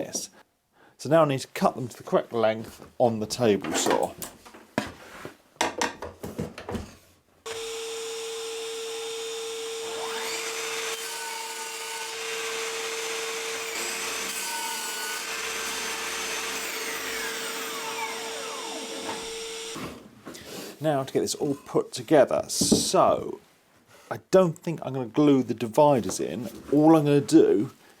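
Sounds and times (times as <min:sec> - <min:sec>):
table saw whining: 0:07.5 - 0:20.0.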